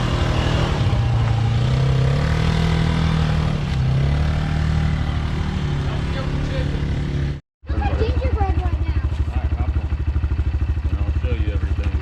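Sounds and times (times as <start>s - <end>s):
small atv engine revving: 0.0s - 12.0s.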